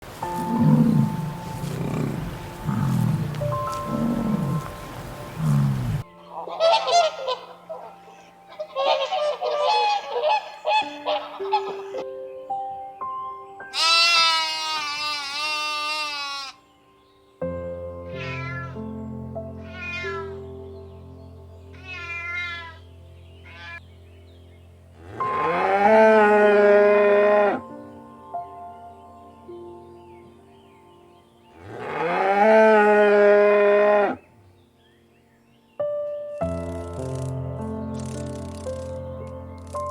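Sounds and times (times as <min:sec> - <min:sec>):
soft background music: 0:00.0 - 0:39.9
cow mooing: 0:00.4 - 0:06.0, 0:25.0 - 0:27.6, 0:31.6 - 0:34.2
low growling call: 0:00.4 - 0:06.1
flock of birds honking: 0:01.0 - 0:12.0
cat meowing: 0:18.1 - 0:18.8, 0:19.6 - 0:20.4, 0:21.8 - 0:22.8.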